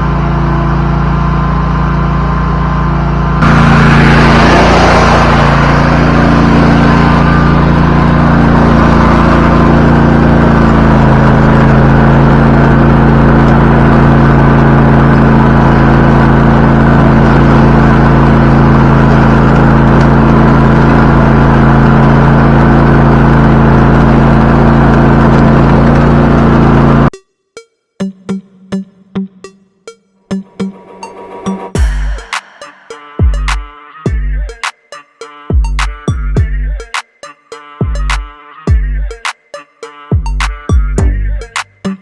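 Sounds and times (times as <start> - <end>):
lawnmower engine running: 0.0 - 27.1.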